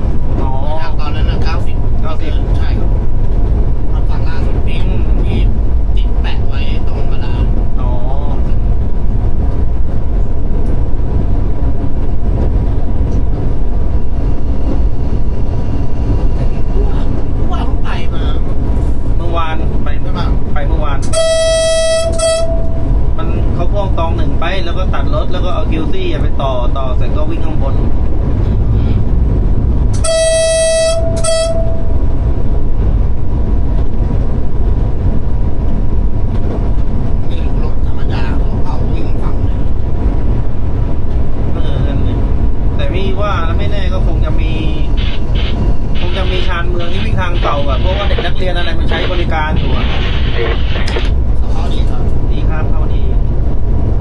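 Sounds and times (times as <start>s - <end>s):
diesel train rumble: 0.0s - 54.0s
train horn blast: 21.0s - 23.0s, 30.0s - 32.0s.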